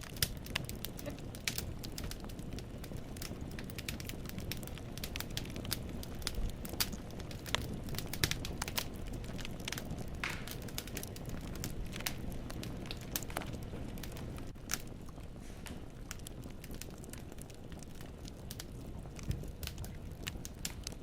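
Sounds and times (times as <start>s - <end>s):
logs crackling and popping: 0.0s - 21.0s
low rumble of flames: 0.0s - 21.0s.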